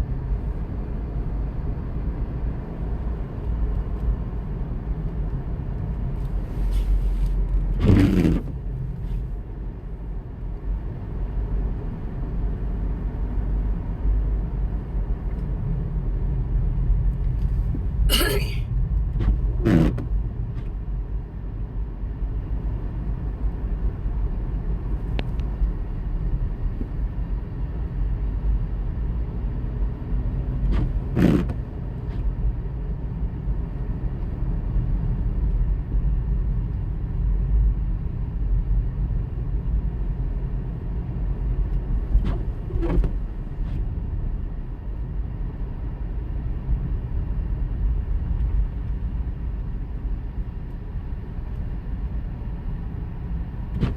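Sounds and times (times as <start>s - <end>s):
car engine and road rumble: 0.0s - 53.9s.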